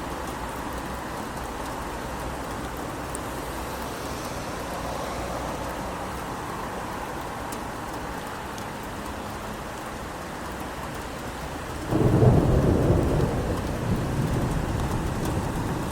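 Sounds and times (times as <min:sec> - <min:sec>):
steady rain falling: 0:00.0 - 0:15.9
thunder rumbling: 0:11.9 - 0:15.9.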